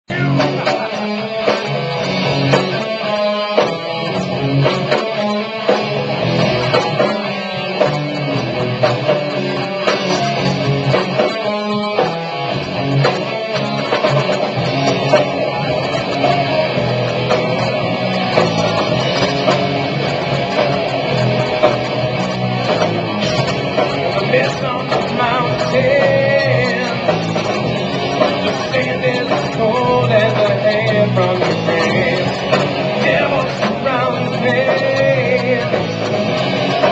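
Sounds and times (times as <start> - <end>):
guitar: 0.0 - 36.9
rock band playing: 0.1 - 36.9.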